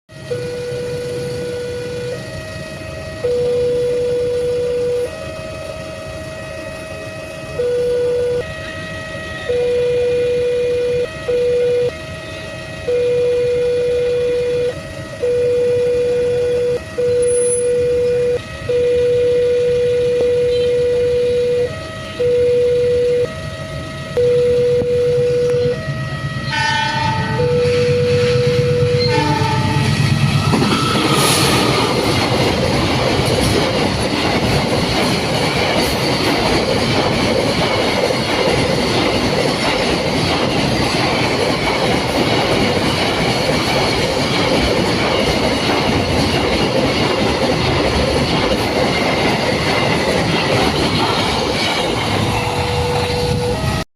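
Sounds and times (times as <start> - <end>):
train horn: 0.1 - 32.0, 52.2 - 53.8
two-pitch warning tone: 0.1 - 35.1, 35.7 - 53.9
train wheels clacking over rails: 29.1 - 53.8.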